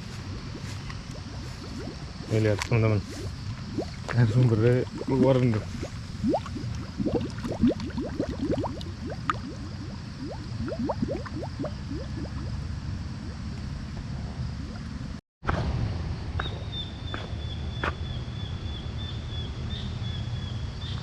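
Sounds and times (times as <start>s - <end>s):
small bubbling pops: 0.0s - 12.6s, 13.2s - 15.0s
spring water gurgling: 0.0s - 13.8s.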